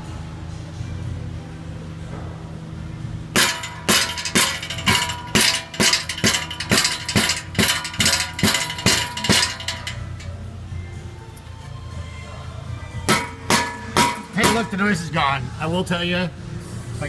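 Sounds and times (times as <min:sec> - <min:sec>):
loose exhaust heat shield clanging: 0:03.3 - 0:10.7, 0:13.0 - 0:16.0.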